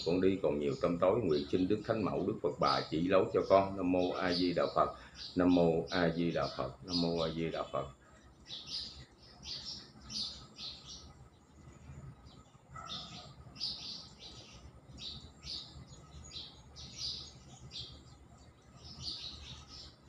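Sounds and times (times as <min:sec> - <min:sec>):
faint steady low hum: 0:00.0 - 0:20.0
small birds chirping: 0:00.0 - 0:20.0.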